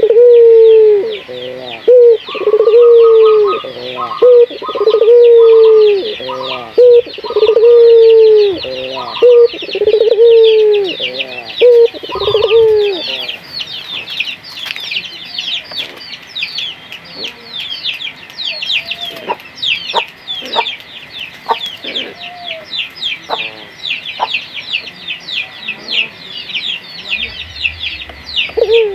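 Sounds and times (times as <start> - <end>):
dove cooing: 0.0 - 13.4, 27.1 - 28.9
rapid high chirping: 27.1 - 28.9.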